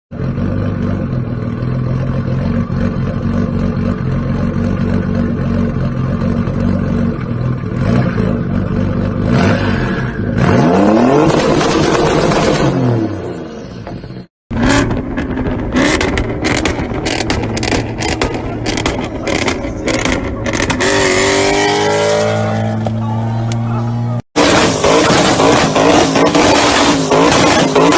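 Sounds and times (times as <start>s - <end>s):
car engine idling and revving: 0.1s - 27.9s
engine with sharp cracks: 13.8s - 21.1s.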